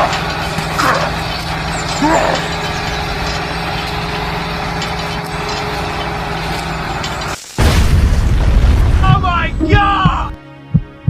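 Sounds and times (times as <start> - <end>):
loud booming sound: 7.6 - 10.3.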